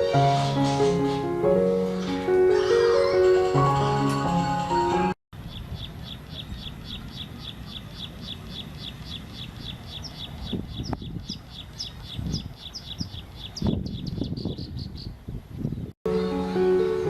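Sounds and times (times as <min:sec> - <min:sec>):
small bird chirping rapidly: 0:05.4 - 0:15.9.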